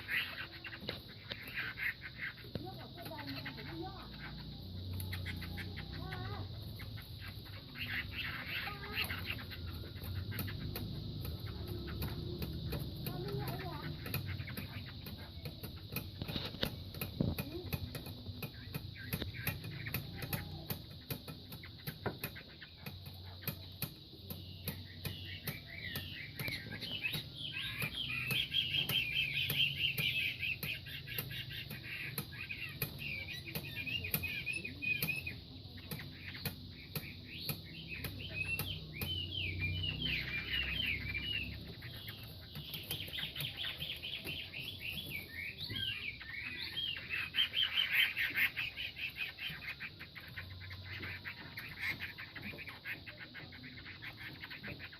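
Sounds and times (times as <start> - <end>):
sharp clicks: 0.0 - 54.9
songbirds warbling calls: 0.0 - 54.9.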